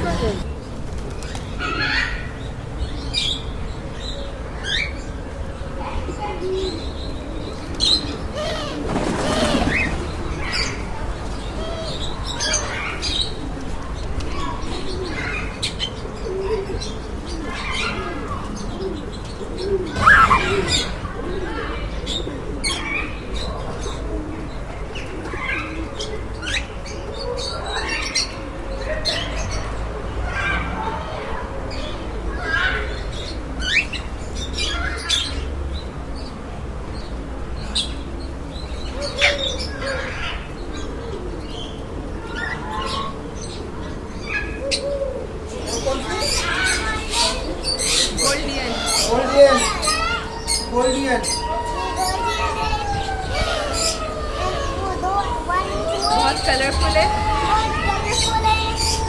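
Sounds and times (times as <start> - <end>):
pigeons cooing: 0.0 - 2.4, 5.0 - 29.7, 36.8 - 59.0
caged birds chirping and squawking: 0.0 - 59.0
sharp bird call: 19.9 - 21.1.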